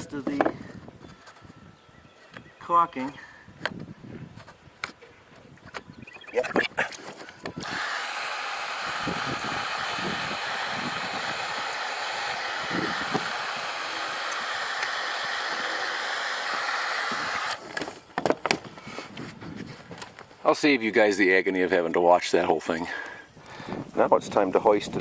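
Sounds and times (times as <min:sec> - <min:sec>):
electric air blower: 0:07.6 - 0:17.8.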